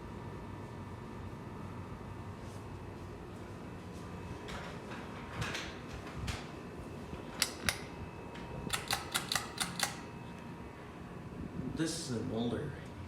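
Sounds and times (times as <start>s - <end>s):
ceiling fan humming: 0.0s - 13.0s
sharp clicks: 7.4s - 7.9s, 8.7s - 10.0s.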